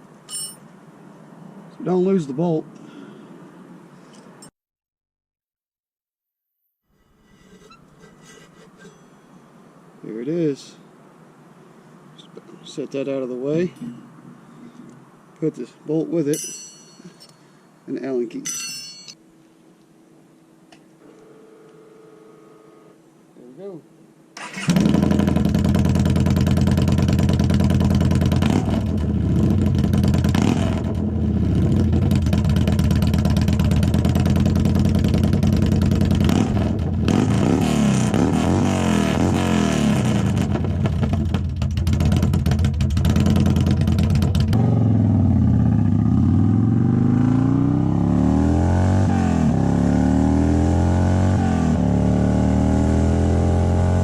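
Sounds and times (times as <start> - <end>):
motorcycle engine revving: 24.4 - 54.0.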